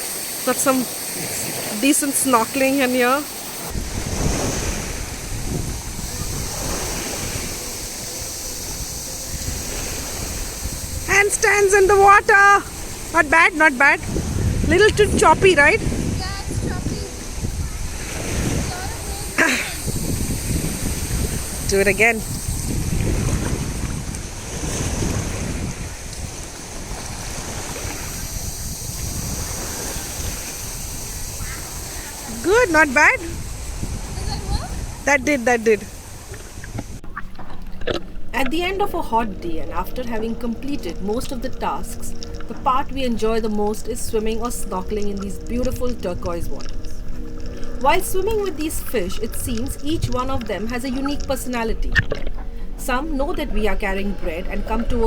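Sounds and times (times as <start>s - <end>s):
choppy sea water sloshing: 0.0s - 55.0s
waves splashing: 0.0s - 55.0s
wind buffeting microphone: 0.0s - 55.0s.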